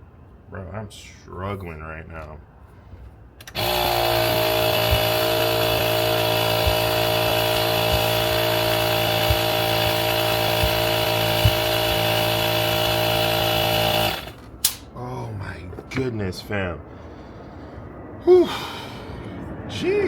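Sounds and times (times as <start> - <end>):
air compressor running: 3.4 - 14.8.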